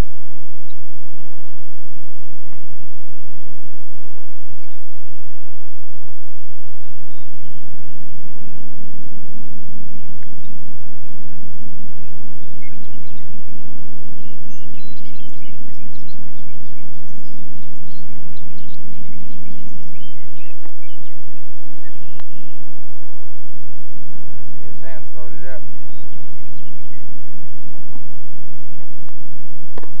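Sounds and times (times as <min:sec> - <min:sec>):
low hum: 0:00.0 - 0:30.0
birds chirping: 0:04.1 - 0:05.6, 0:06.6 - 0:08.7, 0:09.8 - 0:29.2.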